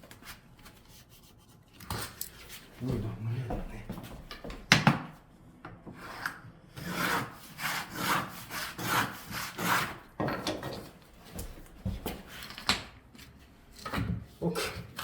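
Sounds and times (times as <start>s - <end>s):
hand tool rasping on wooden floor: 6.0s - 10.0s.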